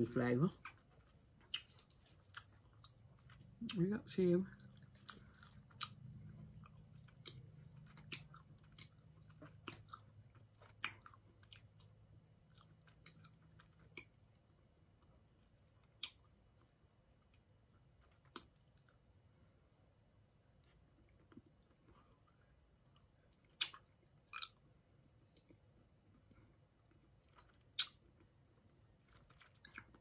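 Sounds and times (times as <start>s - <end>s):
chewing taffy candy: 0.5s - 19.3s, 20.6s - 30.0s
sharp mouth clicks: 27.8s - 28.0s.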